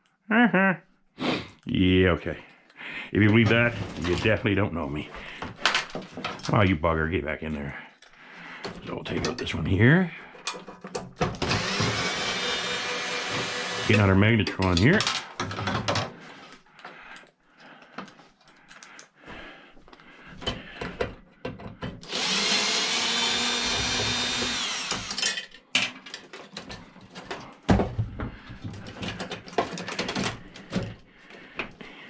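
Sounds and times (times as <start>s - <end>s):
power drill running: 11.4s - 14.2s, 22.0s - 25.2s.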